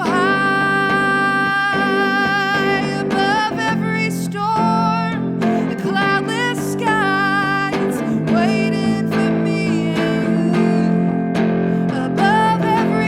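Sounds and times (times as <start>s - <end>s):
strummed guitar chords: 0.0s - 13.0s
woman singing slow song: 0.0s - 13.0s.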